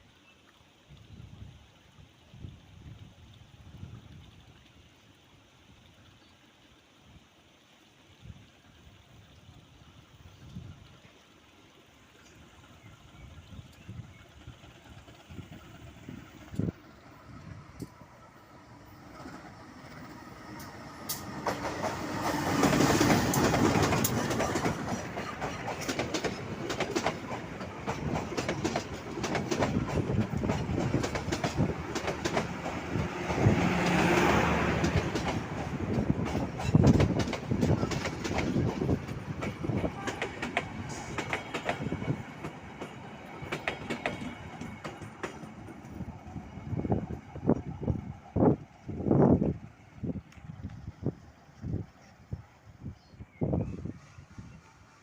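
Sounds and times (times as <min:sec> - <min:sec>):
train wheels clattering over rail joints: 0:20.6 - 0:46.3.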